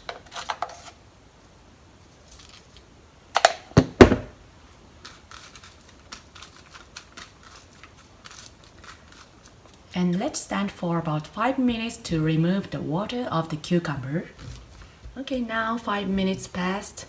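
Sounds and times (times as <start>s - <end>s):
sharp knocks: 3.8s - 4.4s.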